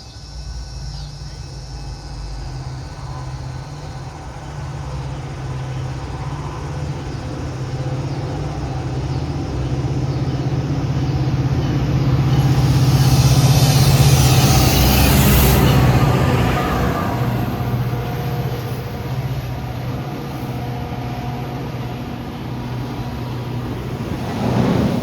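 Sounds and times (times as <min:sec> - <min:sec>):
train engine hum: 0:00.0 - 0:25.0
hiss of wheels on rail: 0:11.3 - 0:25.0.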